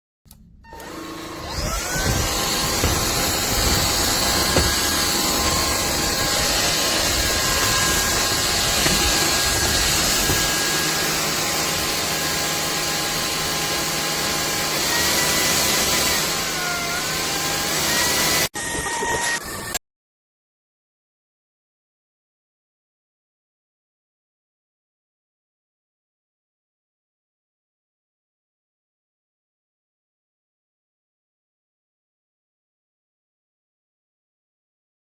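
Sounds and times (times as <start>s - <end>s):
vacuum cleaner motor whining: 0.3s - 19.8s.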